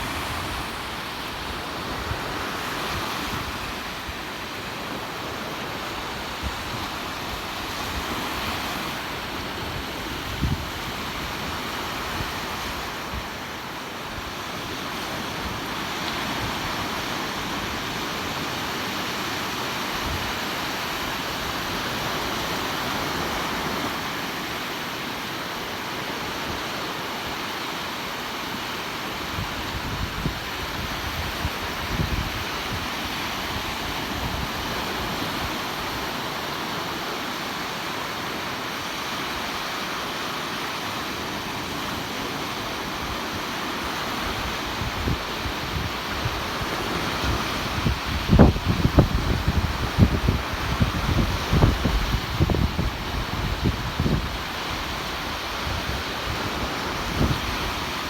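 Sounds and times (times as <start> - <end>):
wind gusting on microphone: 0.0 - 13.4, 29.2 - 36.8, 41.8 - 58.0
surf washing onto beach: 0.0 - 58.0.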